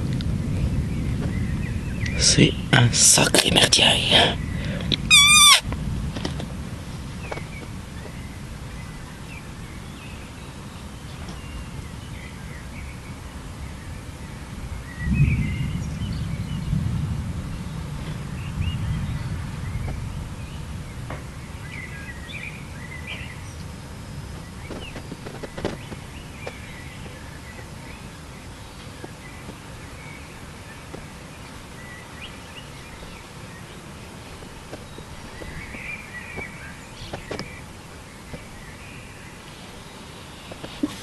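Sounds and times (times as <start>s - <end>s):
low rumble of thunder: 0.0s - 32.0s
birds chirping: 0.0s - 41.0s.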